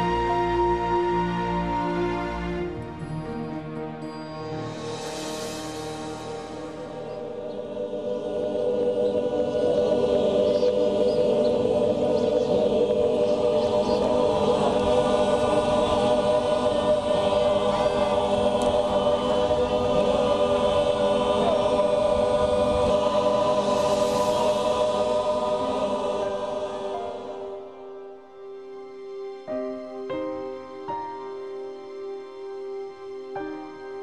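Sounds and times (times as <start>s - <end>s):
choir singing sustained chords: 0.0s - 34.0s.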